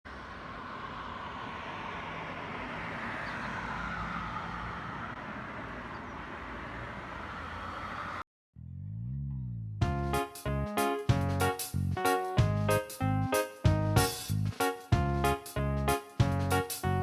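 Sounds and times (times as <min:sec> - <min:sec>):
vehicle rumble and hiss: 0:00.1 - 0:08.2.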